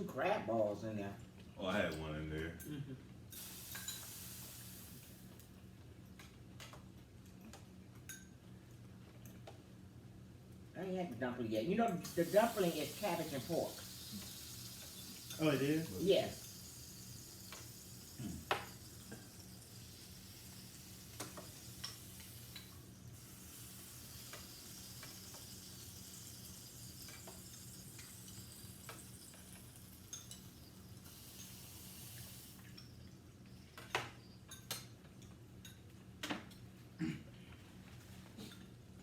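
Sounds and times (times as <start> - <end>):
broth simmering with a hiss: 2.6 - 5.9, 12.0 - 35.0
utensils clicking against pot: 3.3 - 4.2, 11.9 - 33.1.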